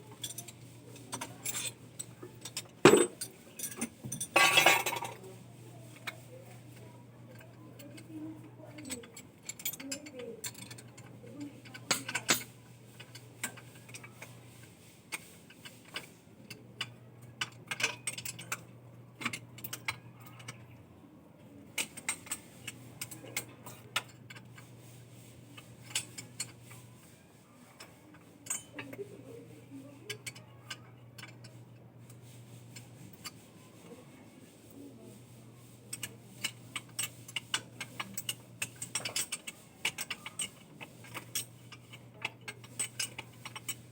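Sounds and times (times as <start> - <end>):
metallic clinks of hand tools: 0.2 - 5.2.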